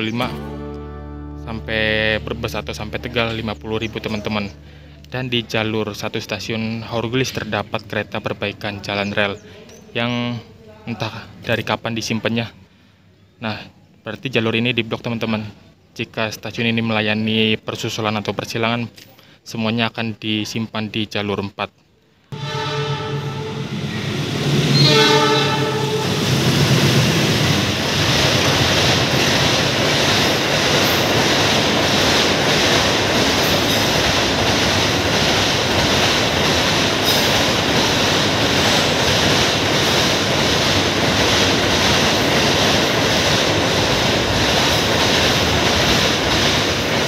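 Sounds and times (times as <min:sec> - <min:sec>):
train horn: 0:22.3 - 0:26.4
train wheels on rails: 0:22.4 - 0:47.0.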